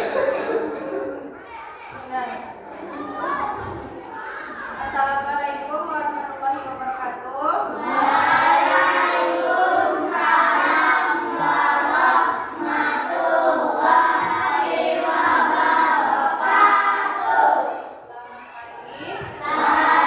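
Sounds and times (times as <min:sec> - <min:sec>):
children singing in unison: 0:07.8 - 0:18.0, 0:19.2 - 0:20.0.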